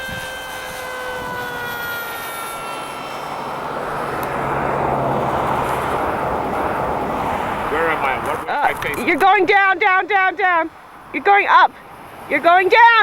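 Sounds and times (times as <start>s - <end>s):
electric propeller motor whine: 0.0s - 8.1s.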